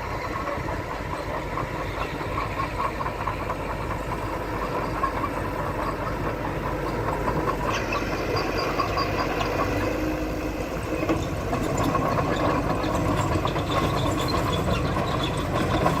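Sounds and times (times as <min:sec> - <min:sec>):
heavy machinery diesel engine: 0:00.0 - 0:16.0.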